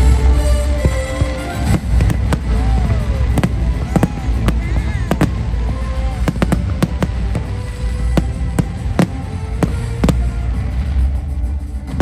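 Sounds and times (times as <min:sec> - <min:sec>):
loud music: 0:00.0 - 0:12.0
fireworks bangs: 0:00.8 - 0:11.3
deep rumble: 0:00.8 - 0:12.0.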